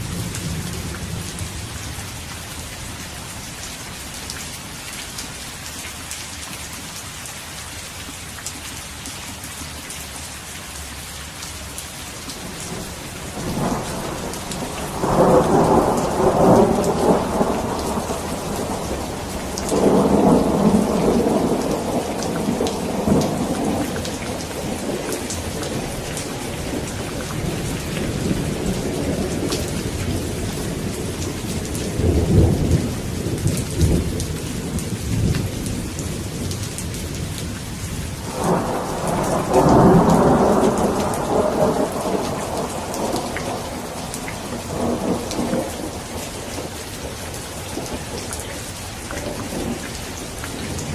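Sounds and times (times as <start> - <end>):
steady rain: 0.0 - 50.9
rolling thunder: 12.5 - 37.6, 38.2 - 48.4.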